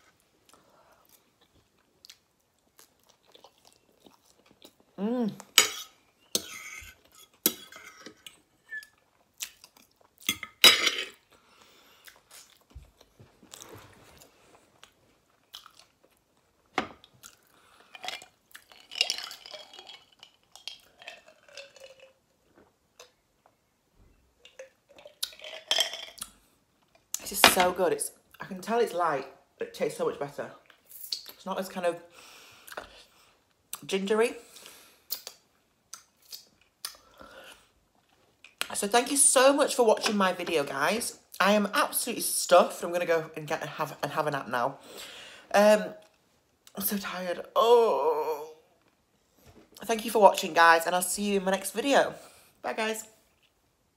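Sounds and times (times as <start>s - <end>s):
person chewing: 0.4s - 23.6s, 24.4s - 27.2s, 34.5s - 38.6s
person humming: 5.0s - 5.4s.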